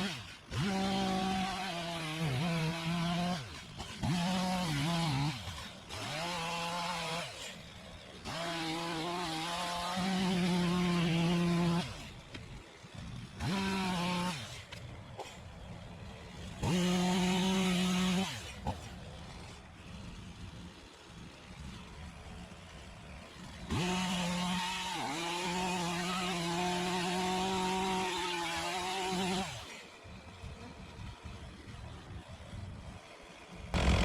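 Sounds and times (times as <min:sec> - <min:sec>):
chainsaw cutting wood: 0:00.0 - 0:34.0.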